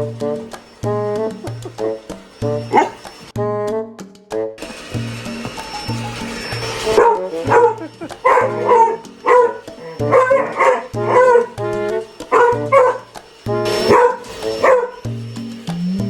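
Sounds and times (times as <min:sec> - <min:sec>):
dog barking: 0:02.6 - 0:03.1, 0:06.8 - 0:15.1.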